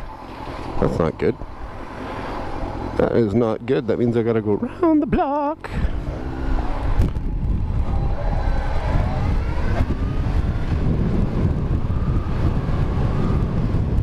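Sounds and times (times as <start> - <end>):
wind rushing over microphone: 5.7 - 14.0.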